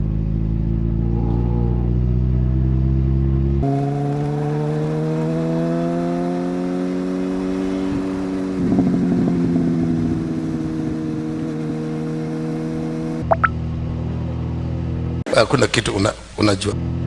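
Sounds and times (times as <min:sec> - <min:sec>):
motorcycle engine accelerating: 0:00.0 - 0:15.2.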